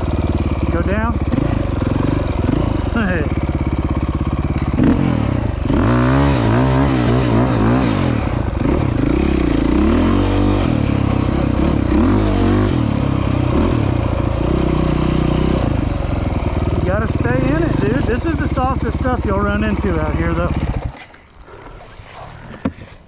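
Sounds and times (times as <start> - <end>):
dirt bike engine revving: 0.0 - 22.9.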